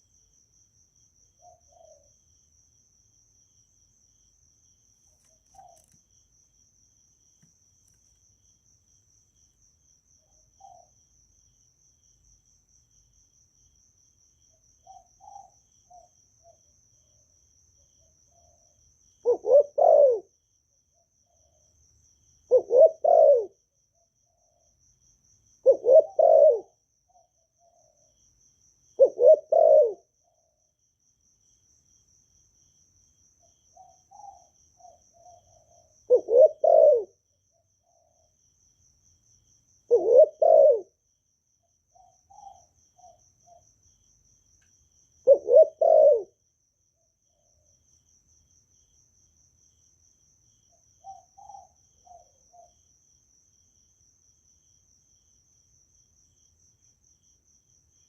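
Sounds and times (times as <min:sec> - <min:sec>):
high cricket trill: 0:00.0 - 0:58.0
dove cooing: 0:01.4 - 0:02.1, 0:18.4 - 0:20.3, 0:22.5 - 0:23.6, 0:25.6 - 0:26.8, 0:29.0 - 0:30.1, 0:33.8 - 0:37.2, 0:39.9 - 0:41.0, 0:42.0 - 0:43.6, 0:45.2 - 0:46.4, 0:51.0 - 0:52.7.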